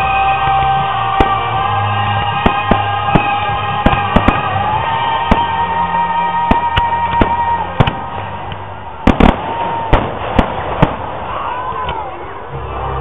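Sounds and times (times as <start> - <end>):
firework shells bursting: 1.1 - 5.6, 6.4 - 11.3.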